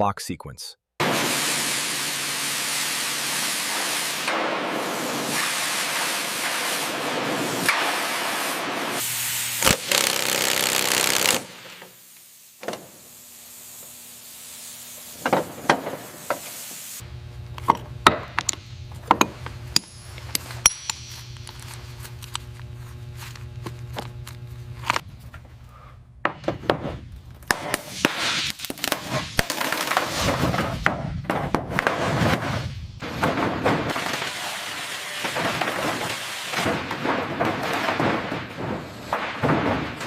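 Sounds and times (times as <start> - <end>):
steady rasping tool noise: 9.0 - 12.0
low hum: 17.0 - 26.2
sharp metallic clinks and knocks: 19.8 - 21.5.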